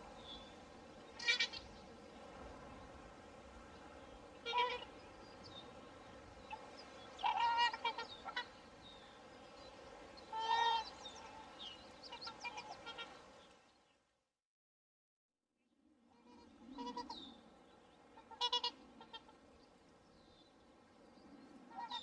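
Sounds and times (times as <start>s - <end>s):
swans calling: 1.1s - 1.8s, 4.3s - 5.0s, 6.5s - 8.8s, 10.2s - 13.3s, 16.3s - 17.3s, 18.1s - 19.5s, 21.7s - 22.0s.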